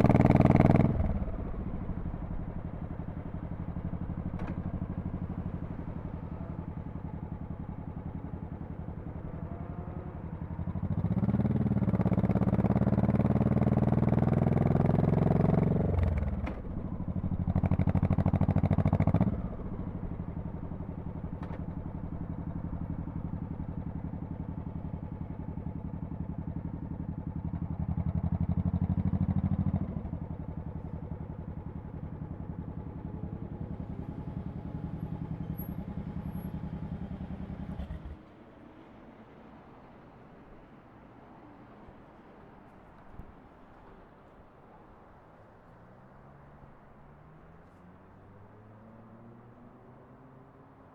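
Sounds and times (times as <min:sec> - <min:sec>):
motorcycle exhaust revving: 0:00.0 - 0:21.3, 0:22.1 - 0:38.2.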